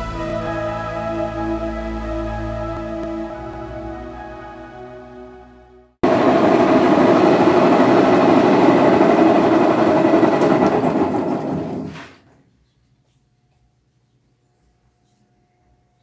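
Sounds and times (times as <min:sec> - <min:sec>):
washing machine spin cycle: 0:06.0 - 0:12.4.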